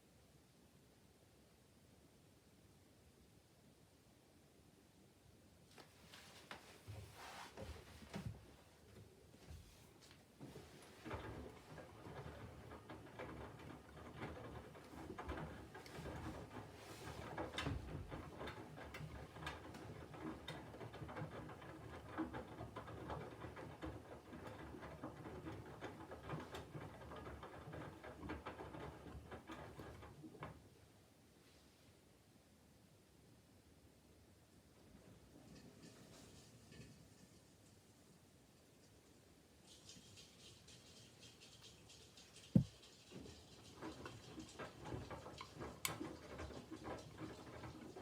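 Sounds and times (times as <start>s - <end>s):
light clicks and knocks: 39.6s - 48.0s.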